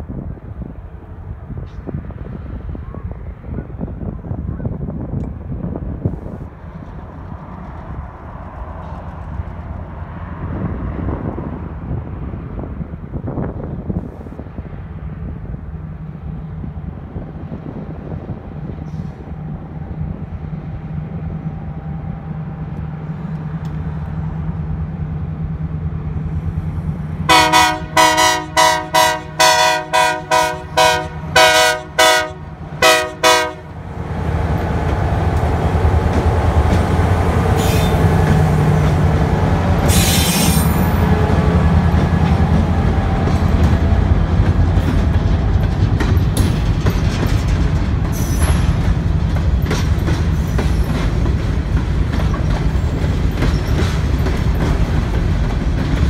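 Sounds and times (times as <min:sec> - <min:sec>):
diesel locomotive engines droning: 0:00.0 - 0:56.0
locomotive horn blasts: 0:27.3 - 0:33.8
high wheel squeal: 0:37.5 - 0:38.1, 0:39.8 - 0:41.1.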